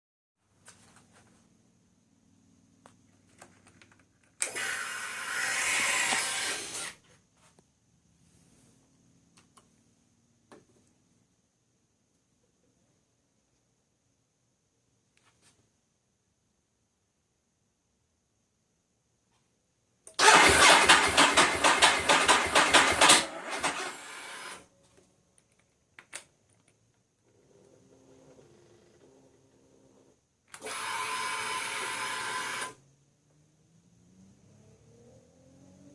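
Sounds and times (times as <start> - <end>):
motorcycle engine cranking: 20.2 - 24.4.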